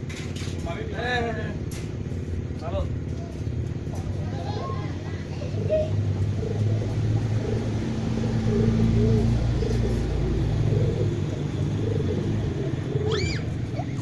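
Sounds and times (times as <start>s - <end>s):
pigeon cooing: 3.8s - 14.0s.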